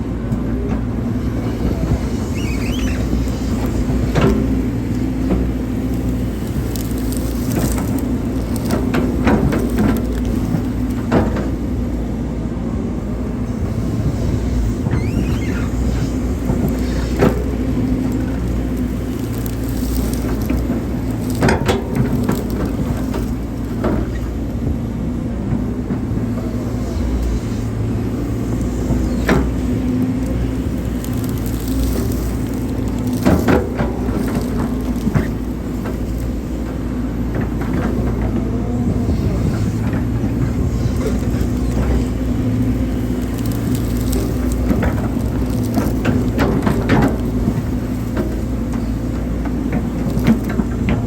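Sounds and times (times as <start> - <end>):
excavator running under load: 0.0 - 51.0.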